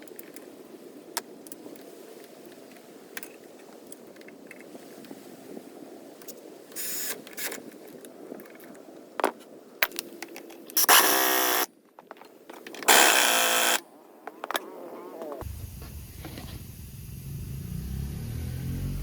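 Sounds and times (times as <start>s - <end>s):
impact wrench bursts: 10.8s - 11.7s, 12.9s - 13.8s.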